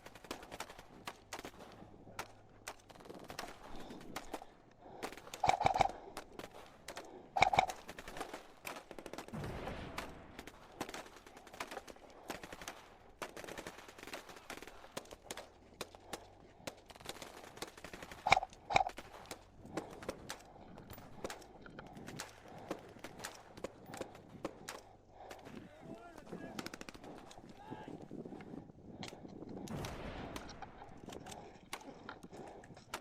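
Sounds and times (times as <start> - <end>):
airsoft guns firing bursts: 0.0 - 9.4, 10.0 - 20.4
sharp clicks and snaps: 2.2 - 9.2, 14.6 - 25.5.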